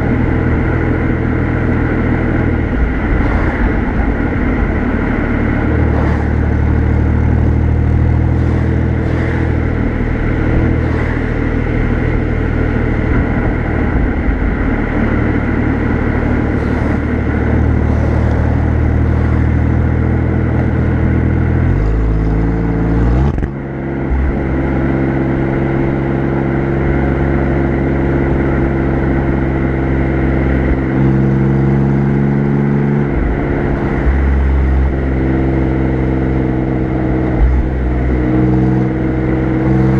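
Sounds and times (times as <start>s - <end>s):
car exhaust while driving: 0.0s - 39.9s.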